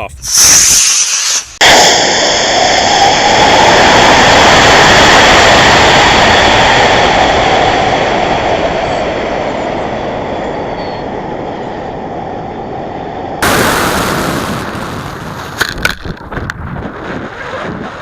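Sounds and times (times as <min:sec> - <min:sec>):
air rushing over rocket: 0:00.2 - 0:08.6, 0:13.4 - 0:18.0.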